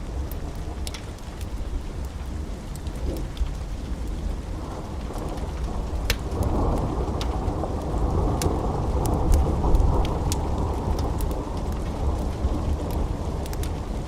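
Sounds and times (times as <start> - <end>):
steady rain: 0.0 - 14.0
wood fire crackling: 0.0 - 14.0
thunder rumbling: 4.0 - 14.0.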